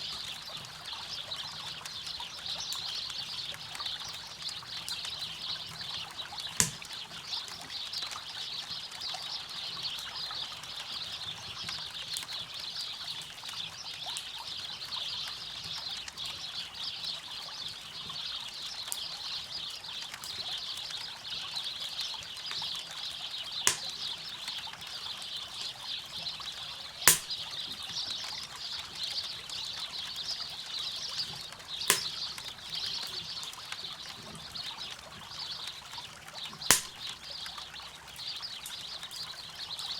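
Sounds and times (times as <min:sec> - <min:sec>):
burning wood popping: 0:06.5 - 0:07.0, 0:23.7 - 0:24.3, 0:27.1 - 0:27.7, 0:31.2 - 0:33.4, 0:36.7 - 0:37.2
campfire crackling: 0:06.6 - 0:07.1, 0:23.7 - 0:24.3, 0:27.1 - 0:28.1, 0:31.3 - 0:34.0, 0:36.7 - 0:37.4.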